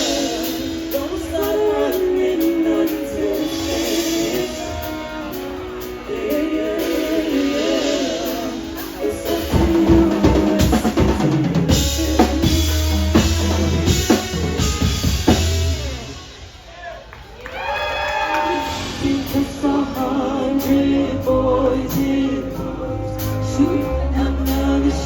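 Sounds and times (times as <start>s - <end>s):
live band music: 0.0s - 17.4s, 18.1s - 25.0s
drum kit rapid hits: 9.3s - 16.7s.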